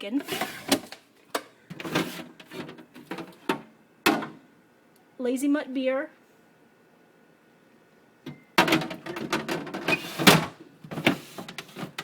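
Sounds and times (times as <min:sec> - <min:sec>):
items clattering and rustling: 0:00.2 - 0:04.4, 0:08.3 - 0:12.0.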